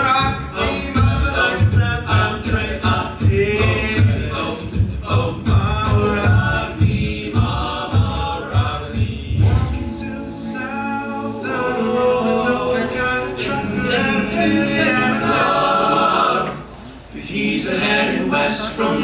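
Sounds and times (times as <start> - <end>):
vocal percussion thumps: 0.0 - 10.8
men singing in harmony: 0.0 - 19.0.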